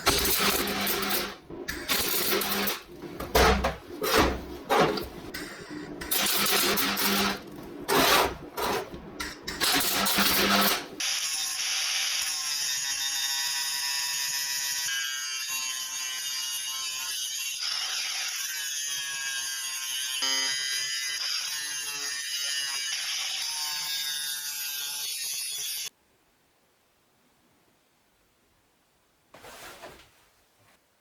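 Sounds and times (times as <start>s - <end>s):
angle grinder cutting steel: 9.6s - 25.9s.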